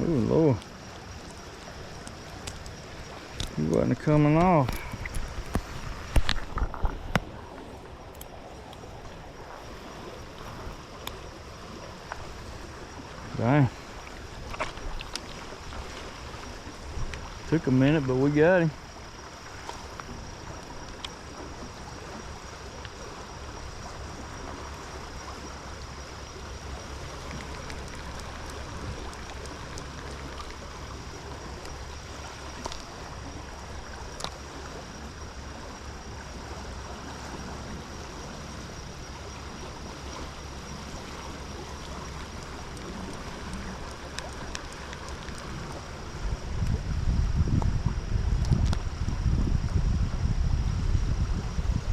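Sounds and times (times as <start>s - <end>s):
stream water flowing: 0.0s - 51.9s
faint clicks: 0.5s - 9.2s, 14.0s - 15.4s, 27.1s - 31.8s, 32.5s - 33.0s, 34.1s - 34.4s, 40.7s - 46.8s.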